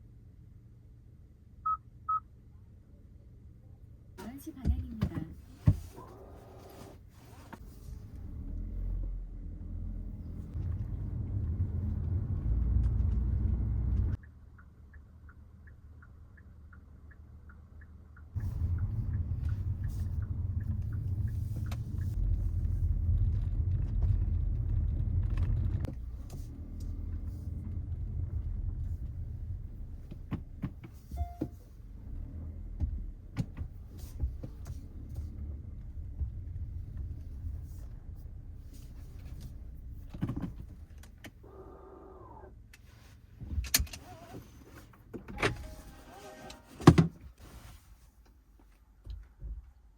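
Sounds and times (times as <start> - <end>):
car driving rumble: 4.2 - 42.7.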